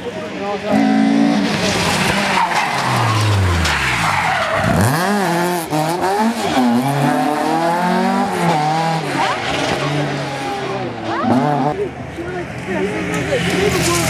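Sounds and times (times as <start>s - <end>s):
rally car engine revving: 0.6s - 14.0s
tyres skidding on road: 1.2s - 11.8s.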